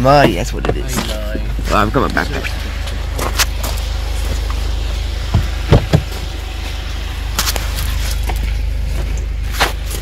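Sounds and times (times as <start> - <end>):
vehicle engine and road noise: 0.0 - 10.0
sharp knocks: 5.3 - 6.2.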